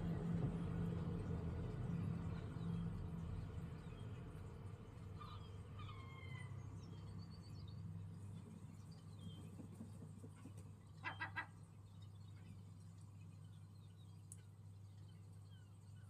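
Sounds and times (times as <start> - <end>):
steady low hum: 0.0 - 16.0
small birds chirping: 0.3 - 16.0
loud bird calls: 5.2 - 6.8, 11.0 - 11.6.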